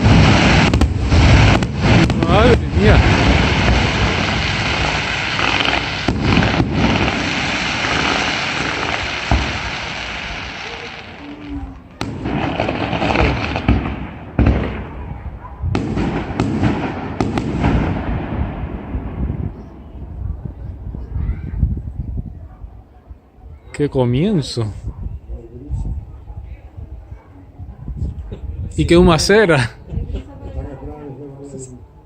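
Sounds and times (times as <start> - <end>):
fireworks crackling: 0.0 - 19.9
fireworks bangs: 0.0 - 20.7.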